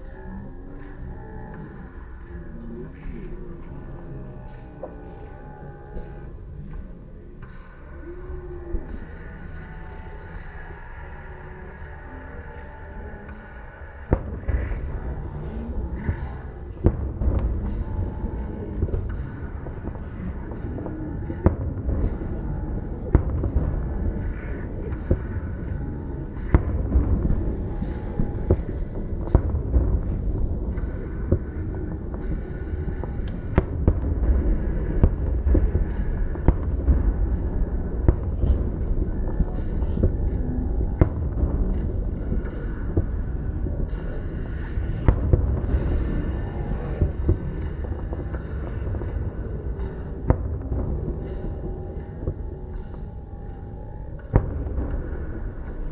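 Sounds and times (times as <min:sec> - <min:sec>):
low rumble: 0:00.0 - 0:55.9
fireworks banging: 0:14.1 - 0:53.6, 0:54.2 - 0:55.9.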